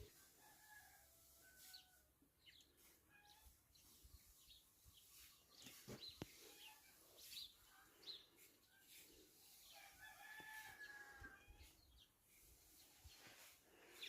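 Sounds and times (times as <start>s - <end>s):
small birds chirping: 1.8s - 11.0s
rooster crowing faintly: 9.7s - 11.8s.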